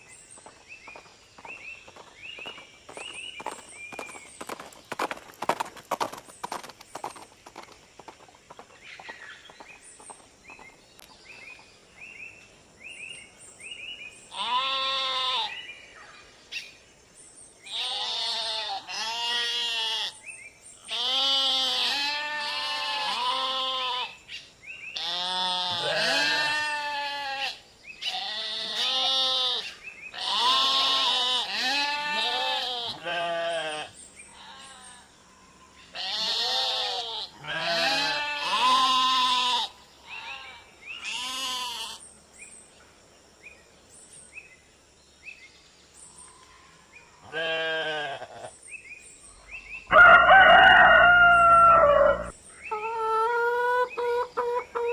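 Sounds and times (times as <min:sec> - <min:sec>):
sheep bleating: 0:17.7 - 0:20.1, 0:20.9 - 0:24.1, 0:25.0 - 0:34.6, 0:36.0 - 0:42.0, 0:47.3 - 0:48.5.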